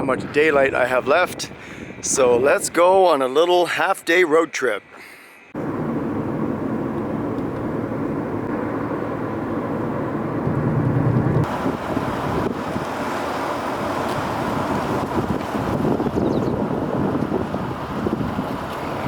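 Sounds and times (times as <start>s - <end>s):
car engine and tyre noise: 5.6s - 19.0s.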